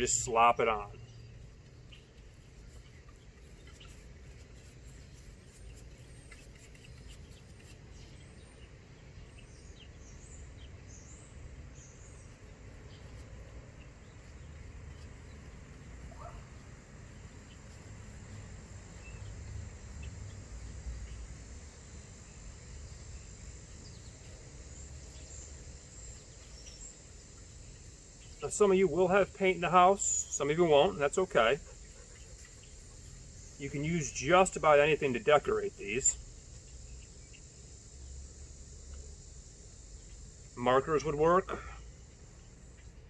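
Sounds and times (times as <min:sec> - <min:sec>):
bird chirps: 0:00.0 - 0:21.4
faint insect drone: 0:00.0 - 0:43.0.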